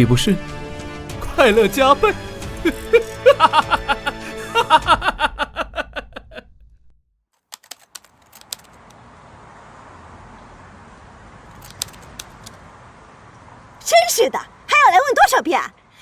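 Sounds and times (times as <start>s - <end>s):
man laughing with echo: 2.6s - 6.7s
sharp clicks: 7.5s - 9.0s, 11.5s - 12.6s.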